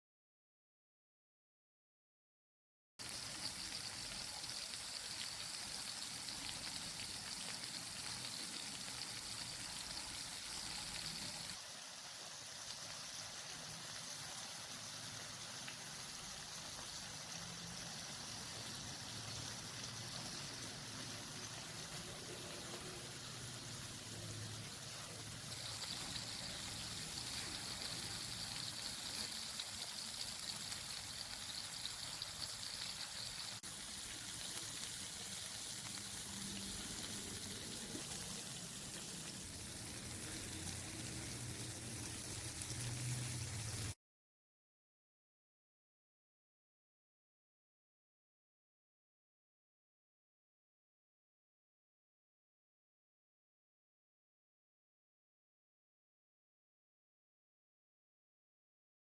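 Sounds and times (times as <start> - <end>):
kebabs sizzling on hot plate: 3.0 - 44.0.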